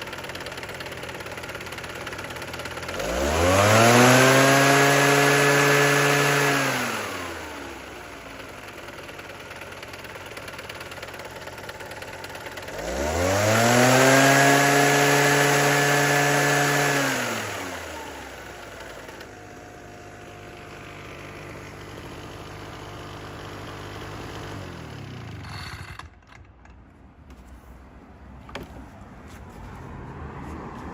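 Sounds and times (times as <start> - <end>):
small engine revving and idling: 0.0 - 26.7
faint handling noise: 26.3 - 30.9.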